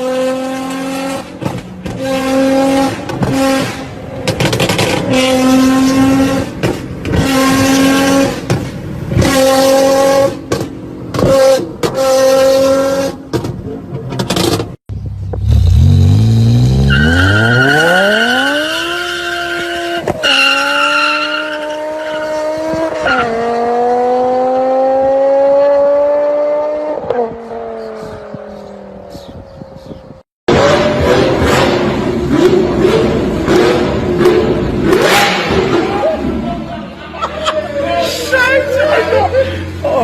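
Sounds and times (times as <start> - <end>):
car engine accelerating through gears: 15.4 - 36.1.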